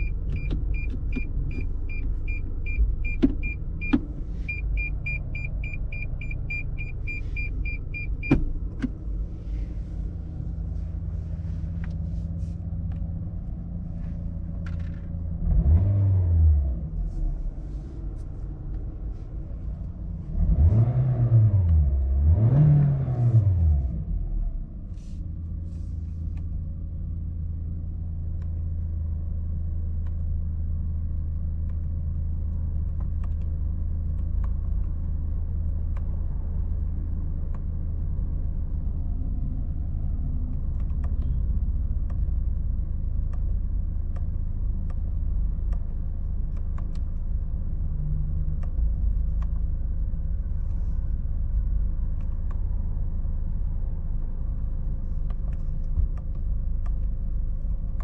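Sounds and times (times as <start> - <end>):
car engine idling: 0.0 - 15.5, 17.0 - 20.8.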